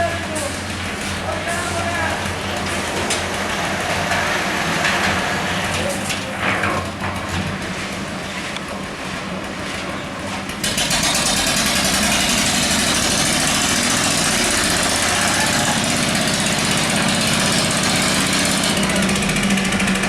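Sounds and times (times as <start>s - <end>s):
small engine running: 10.5s - 20.0s.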